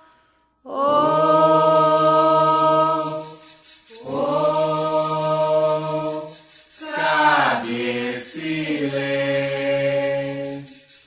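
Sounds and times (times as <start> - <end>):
voices chanting a song: 0.7 - 10.9
rasping shaker: 1.0 - 11.0.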